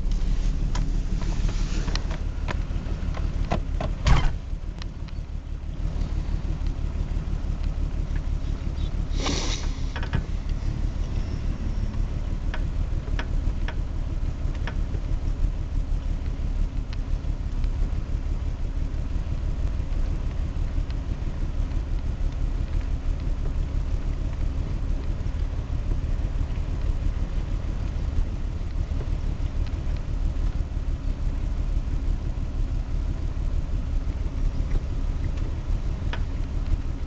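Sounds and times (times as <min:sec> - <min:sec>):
faint sharp clicks: 0:04.8 - 0:05.2
short hiss: 0:09.1 - 0:10.0.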